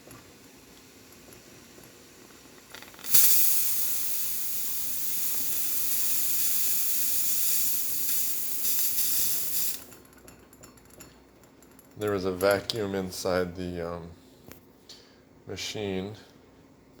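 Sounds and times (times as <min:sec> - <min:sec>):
steam wand hissing: 0:03.0 - 0:09.9.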